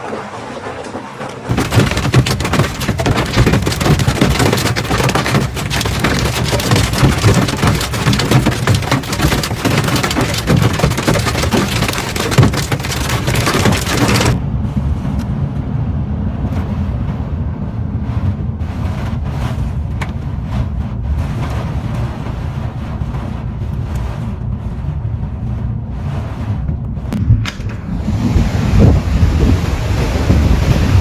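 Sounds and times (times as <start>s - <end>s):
hail and rain clattering: 1.5s - 14.4s, 18.7s - 25.0s.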